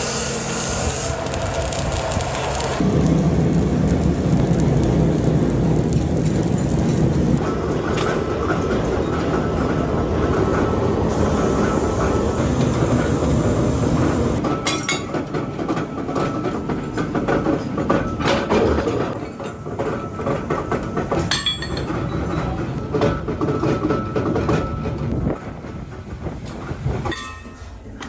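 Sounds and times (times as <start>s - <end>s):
metal clinks and knocks: 21.1s - 25.0s.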